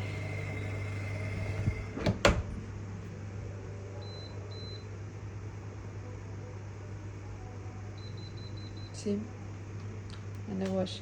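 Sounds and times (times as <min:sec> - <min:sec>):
steady low hum: 0:00.0 - 0:11.0
short high beeps from control panel: 0:04.0 - 0:04.9.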